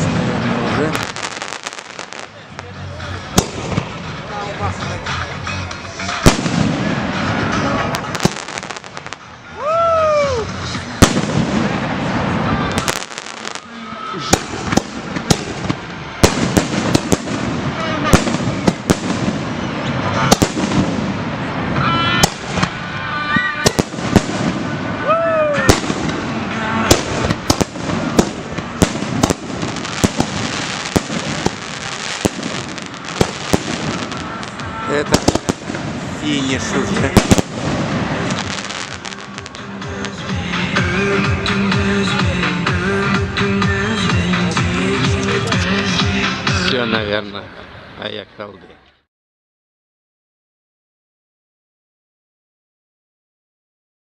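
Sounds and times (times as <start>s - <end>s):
firework bangs: 0.0s - 4.2s, 6.0s - 9.4s, 10.4s - 41.5s
fireworks crackling: 0.0s - 43.0s
crowd noise: 0.0s - 49.1s
dense crackling: 25.7s - 40.2s.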